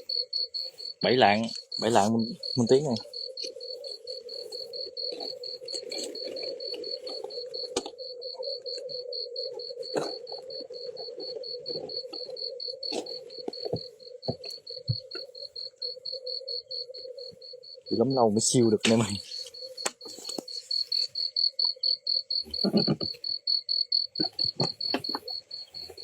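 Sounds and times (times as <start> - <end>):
cricket chirping: 0.0 - 26.0
low insect drone: 0.0 - 26.0
scattered clicks and rustles: 18.7 - 21.8.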